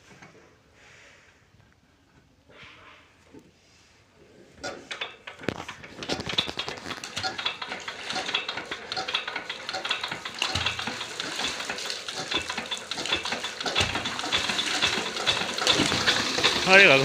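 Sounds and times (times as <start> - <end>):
water churning and splashing: 5.9 - 17.0.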